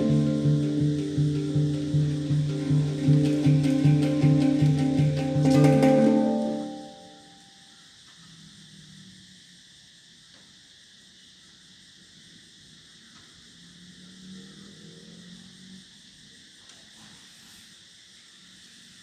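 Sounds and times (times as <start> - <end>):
handpan notes ringing: 0.0 - 7.5
insects chirring: 0.0 - 19.0.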